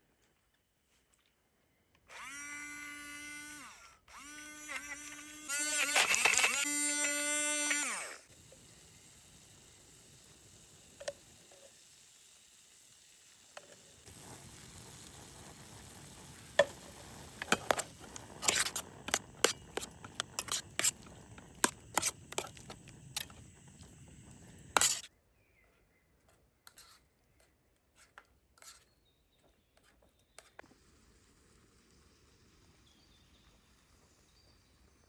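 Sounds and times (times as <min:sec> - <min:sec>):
food sizzling in a pan: 0:05.7 - 0:25.1, 0:30.6 - 0:35.0.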